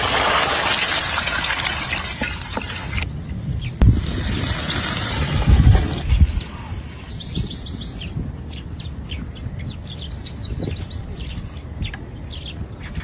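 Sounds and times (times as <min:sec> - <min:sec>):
small birds chirping: 0:06.0 - 0:13.0.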